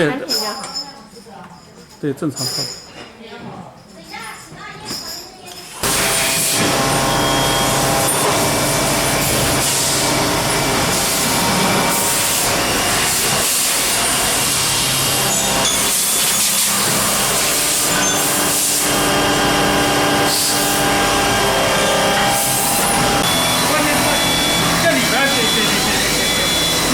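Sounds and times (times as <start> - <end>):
factory machinery hiss: 5.8 - 26.9
machinery humming tones: 5.8 - 26.9.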